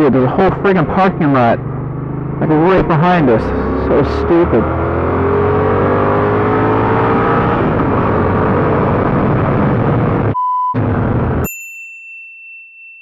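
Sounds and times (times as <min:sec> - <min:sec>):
motorcycle engine accelerating: 0:00.0 - 0:11.5
short beep: 0:10.4 - 0:10.8.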